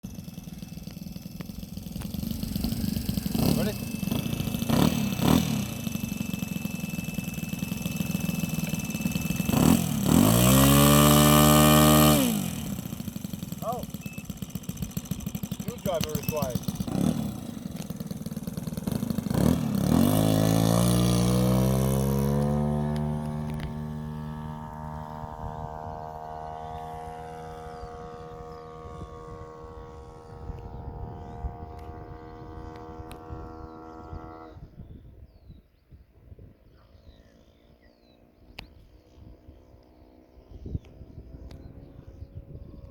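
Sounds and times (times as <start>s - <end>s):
model airplane motor running: 0.0s - 34.8s
faint bird chirps: 13.9s - 14.4s, 30.3s - 42.8s.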